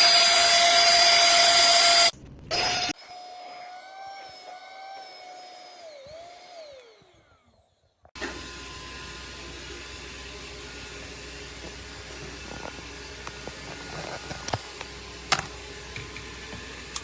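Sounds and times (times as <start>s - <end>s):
vacuum motor whine: 0.0s - 17.0s.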